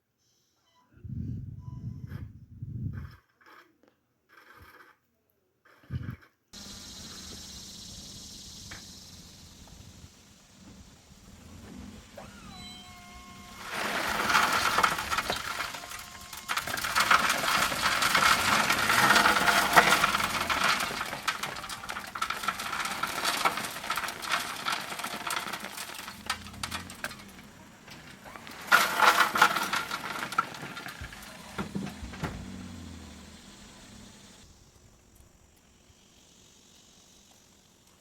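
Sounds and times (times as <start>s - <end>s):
crushed stone pouring and rattling: 6.6s - 34.1s.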